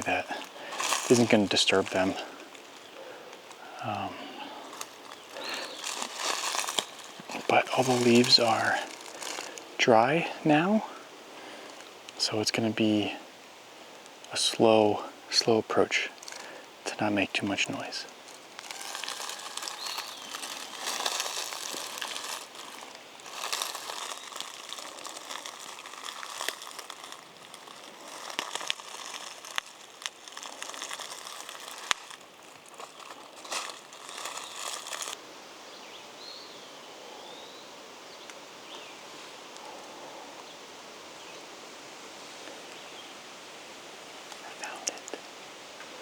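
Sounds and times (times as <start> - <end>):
twigs snapping: 0.0 - 4.0, 4.6 - 9.7, 16.1 - 16.6, 17.8 - 35.2
footsteps crunching dry leaves: 0.0 - 10.4, 16.1 - 16.6, 17.4 - 35.2
forest background: 0.0 - 46.0.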